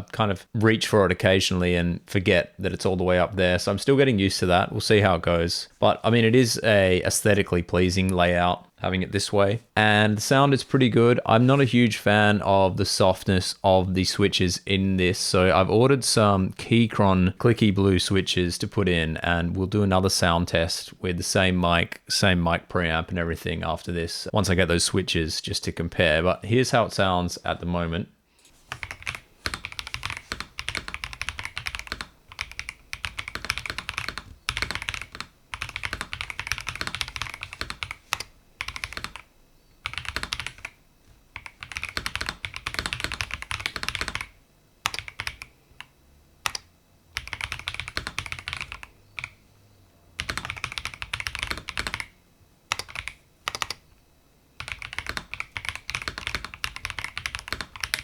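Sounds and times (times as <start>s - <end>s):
mechanical keyboard typing: 28.7s - 40.8s, 41.4s - 49.4s, 50.2s - 52.1s, 52.7s - 53.8s, 54.6s - 58.0s.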